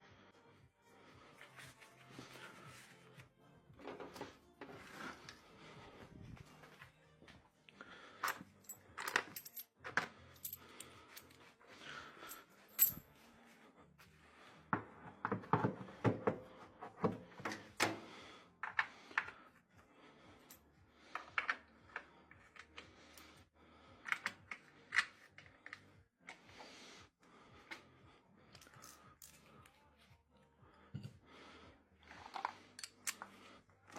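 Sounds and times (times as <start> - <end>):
tools clicking and clinking: 8.2 - 11.4, 12.3 - 13.0, 28.6 - 29.5, 32.2 - 33.3.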